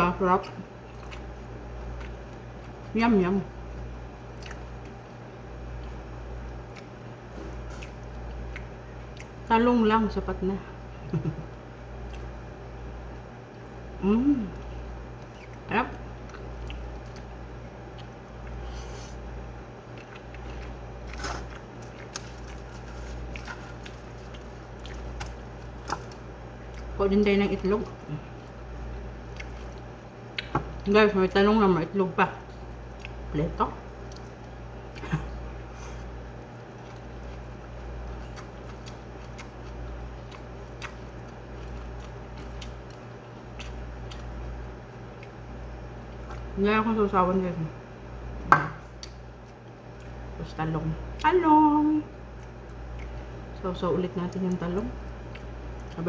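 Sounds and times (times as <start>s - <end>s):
steady low hum: 0.0s - 56.0s
person chewing food: 0.8s - 2.9s, 3.7s - 9.4s, 11.1s - 12.6s, 14.5s - 27.0s, 27.8s - 30.9s, 32.5s - 33.3s, 34.0s - 46.6s, 48.8s - 50.3s, 52.2s - 53.6s, 54.4s - 56.0s.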